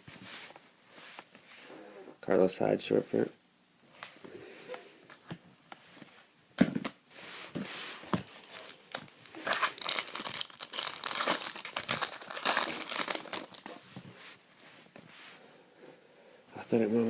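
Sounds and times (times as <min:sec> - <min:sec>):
foil wrapper crackling: 0:08.3 - 0:13.8
foil wrapper tearing: 0:08.4 - 0:13.8.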